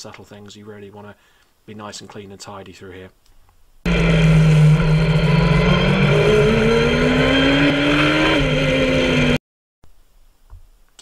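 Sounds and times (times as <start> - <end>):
engine accelerating hard: 3.9 - 9.4.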